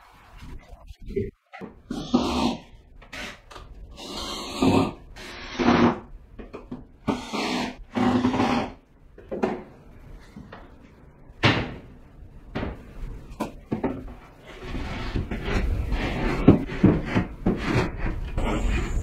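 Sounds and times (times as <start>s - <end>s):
rubbing scrapes: 14.4s - 19.0s.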